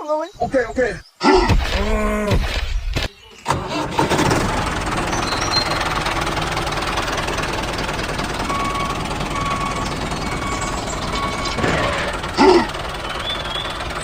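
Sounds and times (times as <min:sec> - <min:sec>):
small tractor engine knocking: 0:03.5 - 0:14.0.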